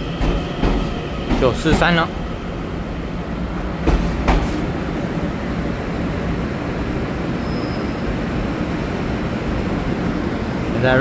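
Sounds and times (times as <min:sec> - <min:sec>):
train wheels rumbling on rail: 0:00.0 - 0:11.0
sharp knocks: 0:00.2 - 0:02.0, 0:03.8 - 0:04.6.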